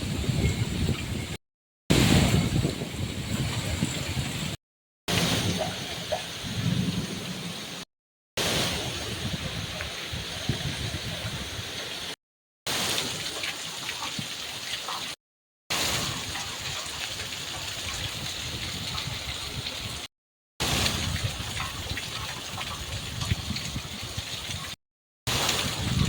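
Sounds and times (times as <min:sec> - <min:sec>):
heavy rain falling: 0:05.1 - 0:07.8, 0:08.4 - 0:15.1, 0:15.7 - 0:24.7, 0:25.3 - 0:26.0.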